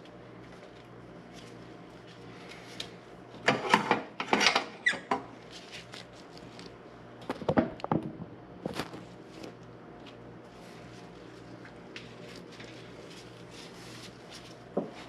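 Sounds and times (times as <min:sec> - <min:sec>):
faint steady hum: 0:00.0 - 0:15.0
squeaking and clattering of parts: 0:03.7 - 0:05.2.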